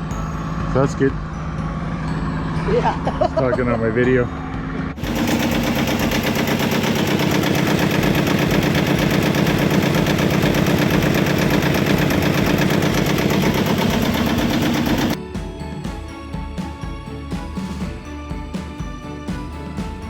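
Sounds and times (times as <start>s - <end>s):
boat engine running: 0.1s - 15.2s.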